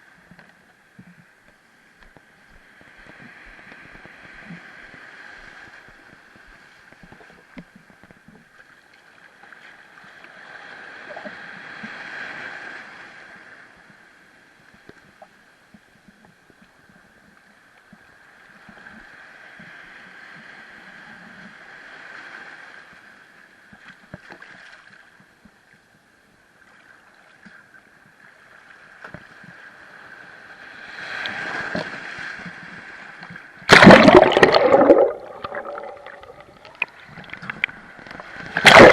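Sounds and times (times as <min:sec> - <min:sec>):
muffled sea waves: 0:00.0 - 0:38.9
loud splash: 0:33.7 - 0:36.9, 0:38.5 - 0:38.9.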